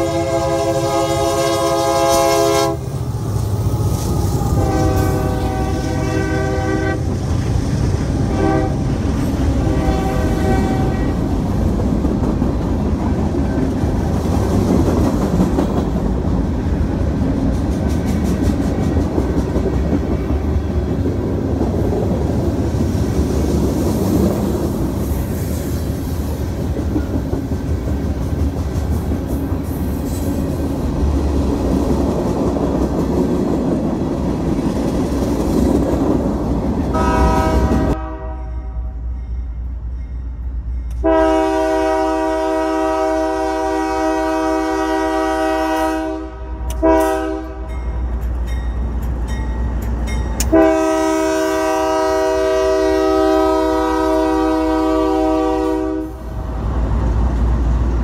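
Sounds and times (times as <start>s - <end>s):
train air horn: 0.0s - 7.2s, 8.2s - 11.3s, 36.9s - 39.0s, 40.9s - 47.8s, 50.5s - 56.3s
freight train cars rumbling: 0.0s - 58.0s
clickety-clack of wheels on rail joints: 1.5s - 38.0s, 46.6s - 52.2s.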